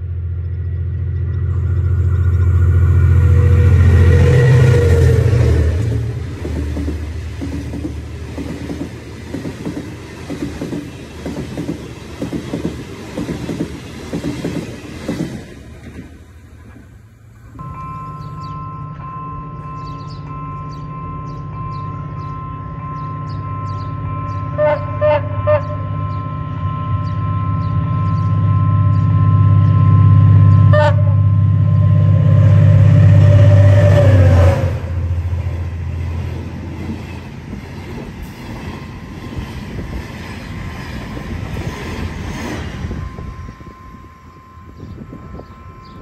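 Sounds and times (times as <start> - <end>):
diesel locomotive engine drone: 0.0 - 46.0
train wheel and rail noise: 0.0 - 46.0
locomotive horn blast: 1.3 - 7.4, 17.6 - 35.8.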